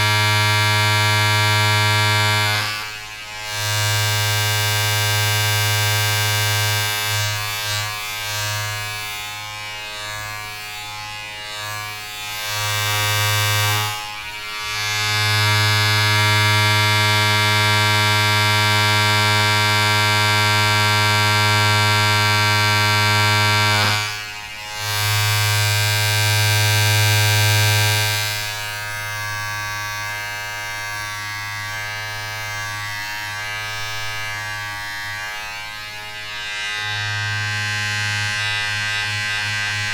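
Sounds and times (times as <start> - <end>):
appliance motor buzzing hum: 0.0 - 39.9.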